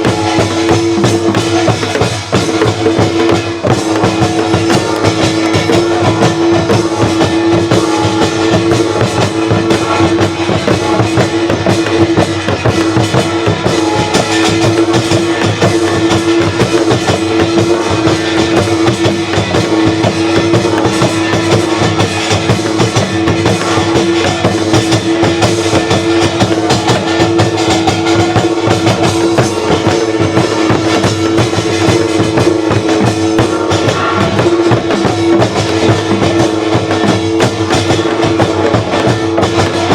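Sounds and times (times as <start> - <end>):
dense drumming: 0.0 - 39.9
folk ensemble music: 0.0 - 39.9.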